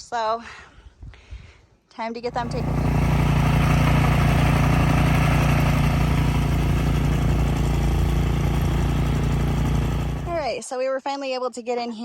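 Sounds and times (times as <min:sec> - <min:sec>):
snow blower engine running: 0:02.3 - 0:10.5.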